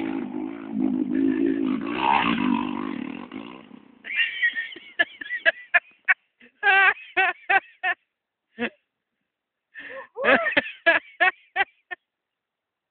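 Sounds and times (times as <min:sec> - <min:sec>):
dirt bike engine running: 0:00.0 - 0:04.1.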